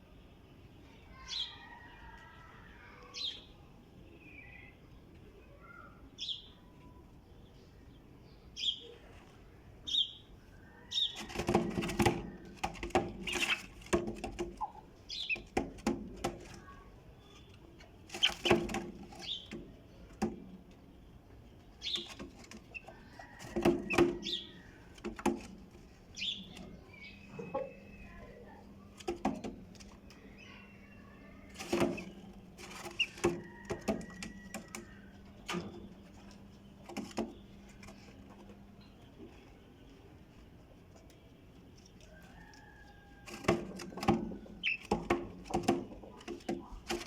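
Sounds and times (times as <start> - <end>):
birds chirping: 0.1 - 9.1, 9.8 - 15.8, 16.4 - 47.0
wings flapping: 11.2 - 14.7.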